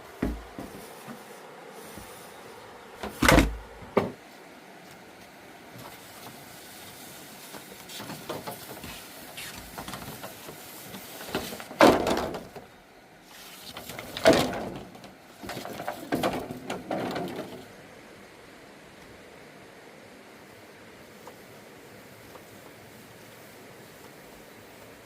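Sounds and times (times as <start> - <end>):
knocks and scrapes: 0.2 - 2.3, 7.4 - 12.6, 13.3 - 17.7.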